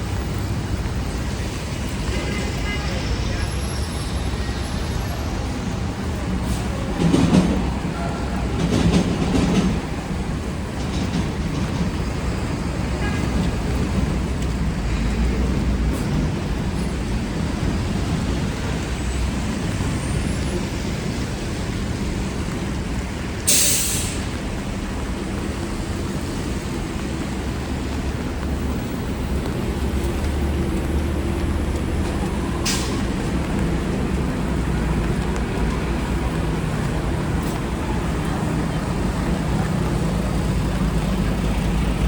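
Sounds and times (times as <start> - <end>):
traffic rumble: 0.0 - 42.0
short hiss: 23.5 - 24.3.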